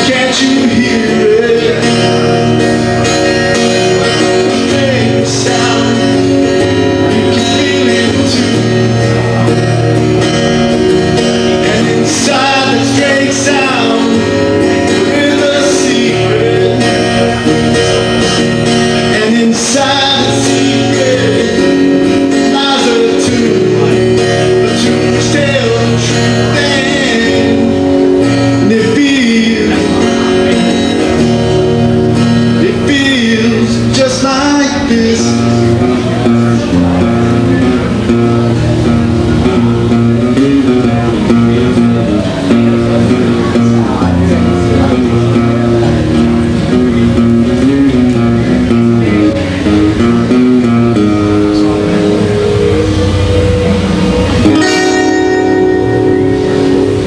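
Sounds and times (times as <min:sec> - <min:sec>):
man singing: 0:00.0 - 0:10.3, 0:11.1 - 0:38.6, 0:39.5 - 0:46.0, 0:46.7 - 0:53.8
guitar playing: 0:00.0 - 0:57.0.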